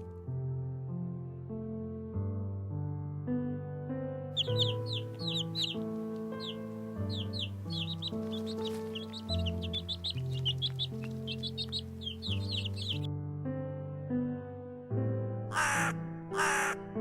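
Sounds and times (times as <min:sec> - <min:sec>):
music of slow held chords: 0:00.0 - 0:17.0
rapid high bird chirps: 0:04.4 - 0:13.1.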